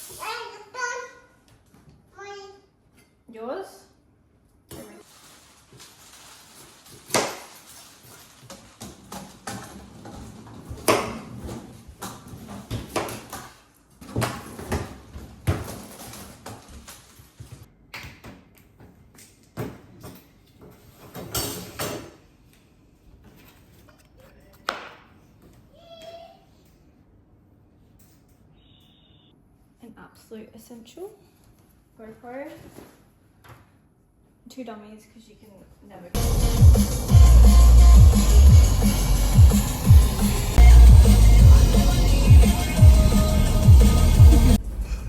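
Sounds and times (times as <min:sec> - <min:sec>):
rustling: 0:05.0 - 0:08.8.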